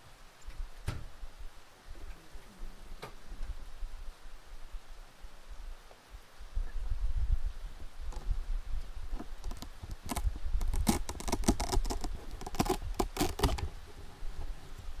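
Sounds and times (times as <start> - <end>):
small clicks and rustles: 8.1 - 14.9.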